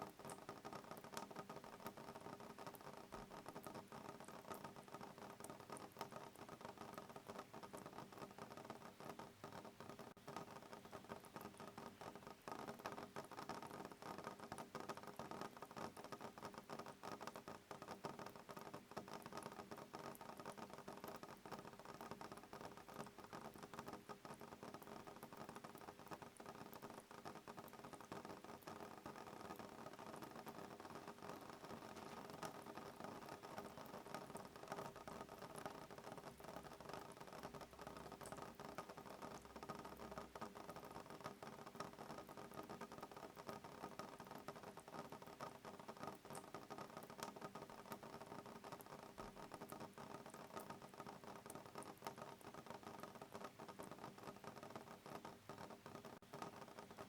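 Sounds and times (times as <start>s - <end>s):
rain pattering on window: 0.0s - 57.0s.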